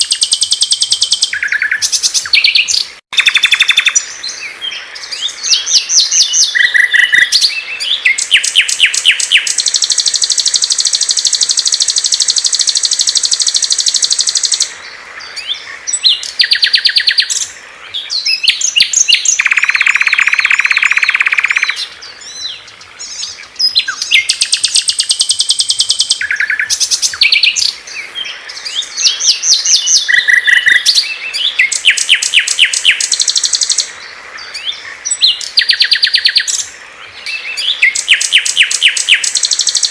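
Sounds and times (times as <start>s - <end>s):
songbirds chirping trills: 0.0s - 39.9s
low buzzy bird trill: 5.4s - 14.7s, 18.3s - 21.8s, 37.3s - 39.9s.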